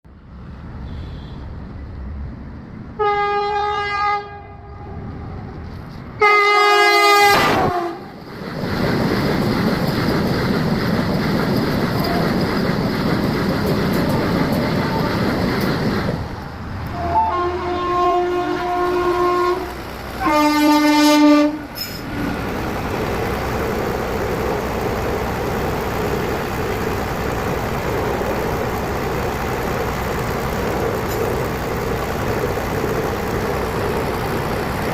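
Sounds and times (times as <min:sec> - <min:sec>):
train running on track: 0:00.0 - 0:34.9
train horn blasts: 0:03.0 - 0:05.4, 0:06.2 - 0:08.1, 0:16.9 - 0:21.7.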